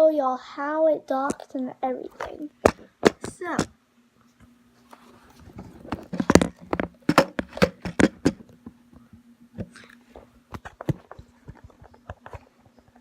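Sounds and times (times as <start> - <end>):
faint steady hum: 0.0 - 13.0
hard objects knocking and clacking: 6.0 - 8.4.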